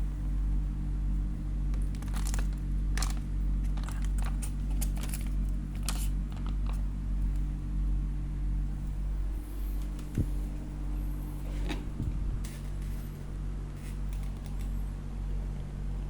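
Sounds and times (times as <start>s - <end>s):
steady low hum: 0.0s - 16.0s
plastic packaging crinkling: 1.8s - 6.9s.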